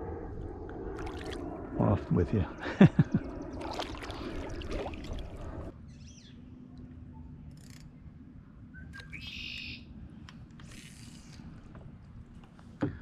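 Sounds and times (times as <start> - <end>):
low steady background rumble: 0.0 - 13.0
songbirds calling: 8.7 - 10.0.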